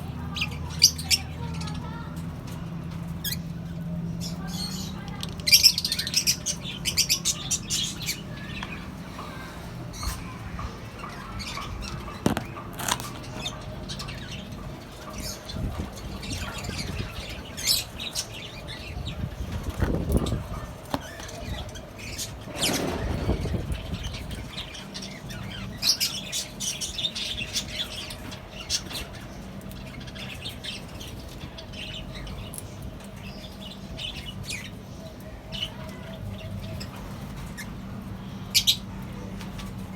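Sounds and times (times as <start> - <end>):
birds chirping and squawking: 0.0 - 39.9.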